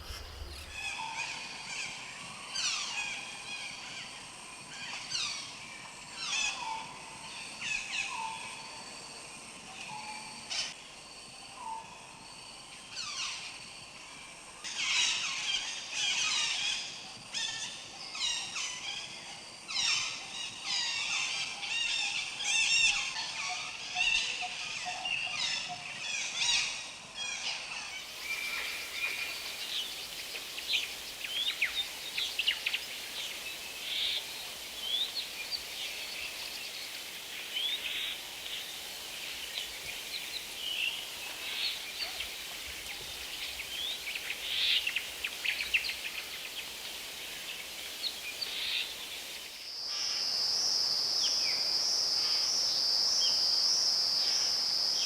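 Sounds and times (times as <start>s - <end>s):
steady hiss: 0.0s - 6.5s, 27.2s - 55.0s
birds chirping and trilling: 24.0s - 49.6s.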